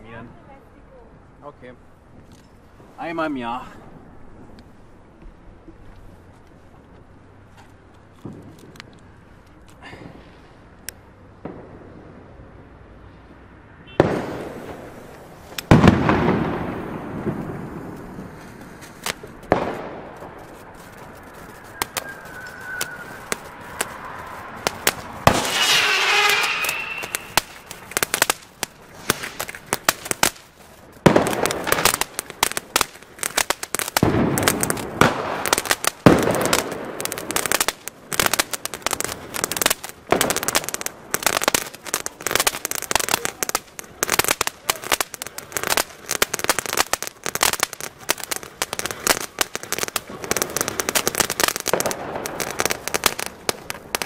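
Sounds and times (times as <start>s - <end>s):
fountain firework crackling: 0.0s - 54.0s
firecracker bangs: 13.8s - 54.0s.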